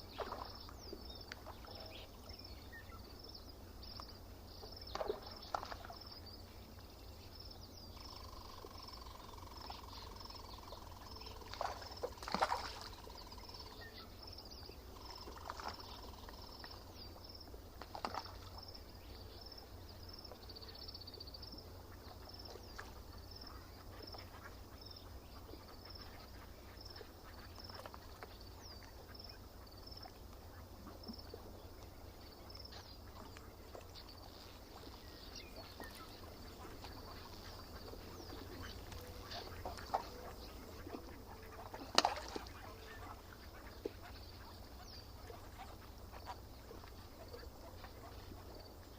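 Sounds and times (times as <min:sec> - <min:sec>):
waterbird calls: 0:00.0 - 0:48.9.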